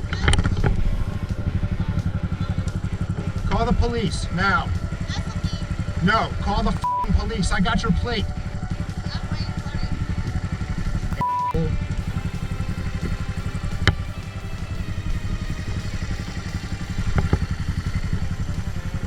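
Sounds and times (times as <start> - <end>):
motorcycle engine idling: 0.0 - 19.0
short high beep: 6.8 - 7.1, 11.2 - 11.7.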